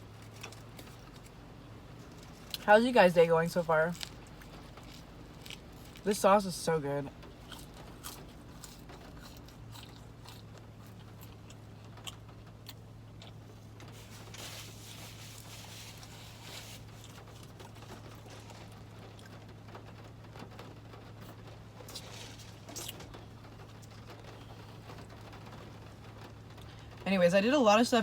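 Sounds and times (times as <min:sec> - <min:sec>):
steady low hum: 0:00.0 - 0:28.0
chewing and biting food: 0:03.8 - 0:06.1, 0:07.2 - 0:19.4.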